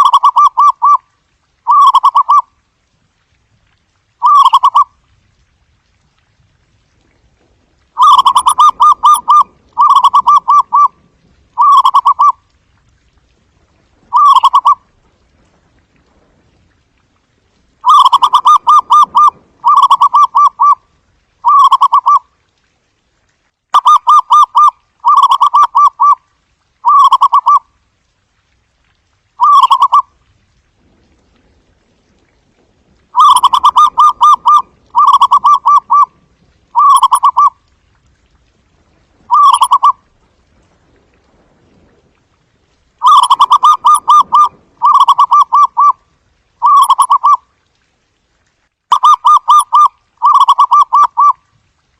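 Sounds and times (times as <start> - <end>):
dove trilled cooing: 4.2 - 4.9, 8.0 - 11.0, 11.6 - 12.4, 14.1 - 14.8, 17.8 - 20.8, 29.4 - 30.0, 33.2 - 36.1, 36.7 - 37.6, 39.3 - 40.0, 43.0 - 46.0, 46.6 - 47.4, 48.9 - 51.4.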